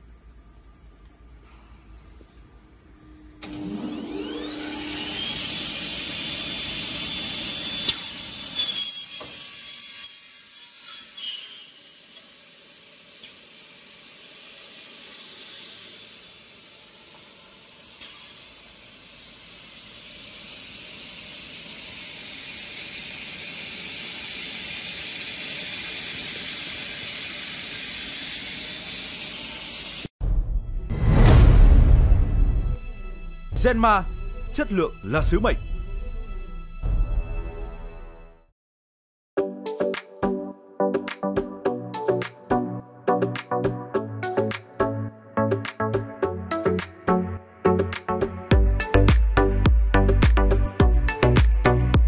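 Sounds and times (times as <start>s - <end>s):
high-pitched motor whine: 2.8s - 30.1s.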